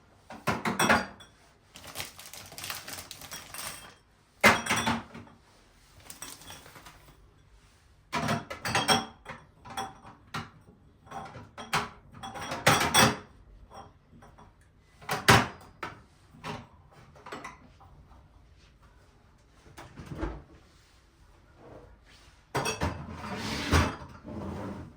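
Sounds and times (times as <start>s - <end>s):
household knocks and clatters: 1.7s - 5.2s, 6.0s - 7.1s.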